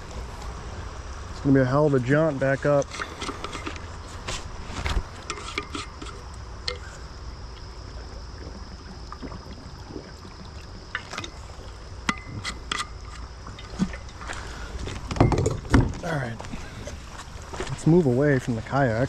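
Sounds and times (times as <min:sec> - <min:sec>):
low rumble of moving air: 0:00.0 - 0:05.4
creek water trickling: 0:00.0 - 0:19.0.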